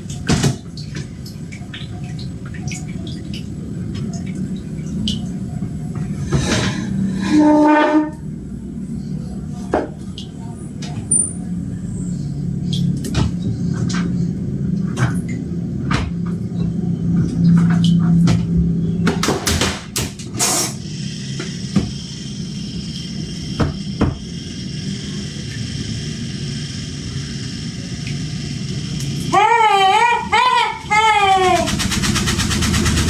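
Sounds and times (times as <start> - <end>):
washing machine knocking and banging: 0.0 - 3.1, 13.1 - 14.1, 14.9 - 16.5, 17.1 - 20.4, 23.6 - 24.3
washing machine motor hum: 0.0 - 33.0.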